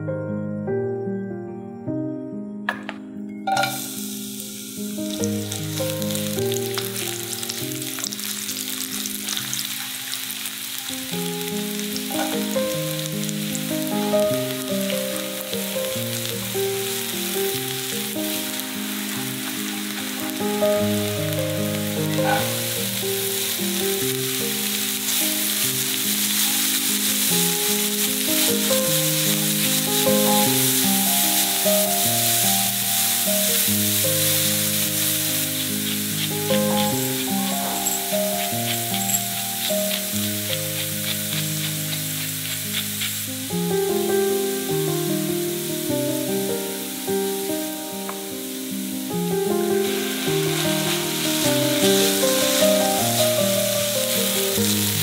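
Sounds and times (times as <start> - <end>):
soft background music: 0.0 - 55.0
vegetables sizzling in a pan: 3.5 - 55.0
spatula stirring: 12.0 - 12.6, 33.5 - 43.5, 49.8 - 54.8.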